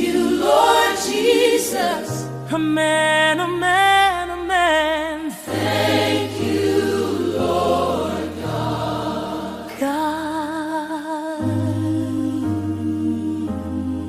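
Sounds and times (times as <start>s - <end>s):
choir singing held notes: 0.0s - 2.4s, 5.4s - 10.1s.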